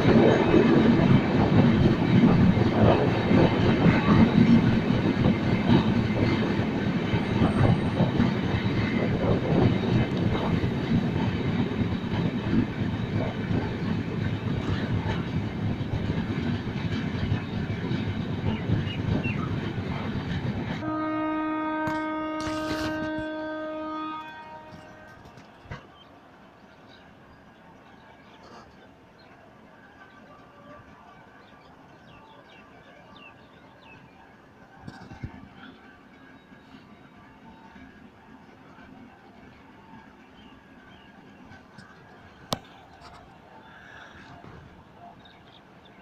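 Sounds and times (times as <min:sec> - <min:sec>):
train rumble and wheel clatter: 0:00.0 - 0:46.0
locomotive horn blast: 0:20.8 - 0:25.4.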